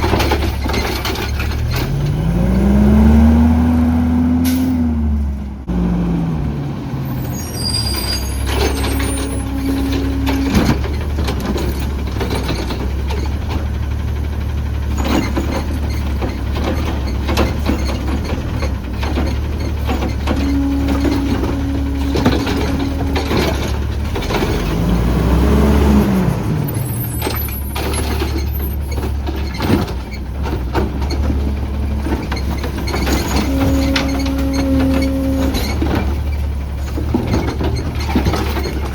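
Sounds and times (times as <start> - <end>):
metal clanks and knocks: 0.0 - 2.4, 8.1 - 25.0, 26.5 - 38.9
garbage truck engine running: 0.0 - 38.9
air brake hissing: 4.4 - 4.8
hydraulic whine: 7.0 - 12.9, 19.7 - 29.7, 31.1 - 38.9.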